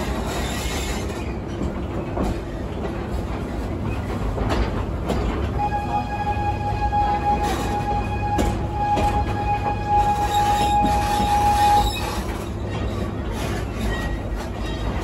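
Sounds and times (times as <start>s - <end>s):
wheel clicks over rail joints: 0.0s - 5.6s
ride train cars rumbling: 0.0s - 15.0s
steady high tone: 5.6s - 11.9s.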